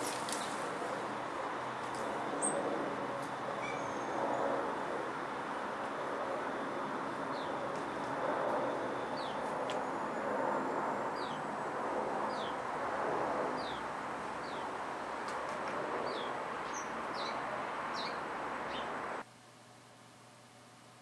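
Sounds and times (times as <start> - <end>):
steady background noise: 0.0 - 21.0
songbird high falling chirp: 16.1 - 18.9.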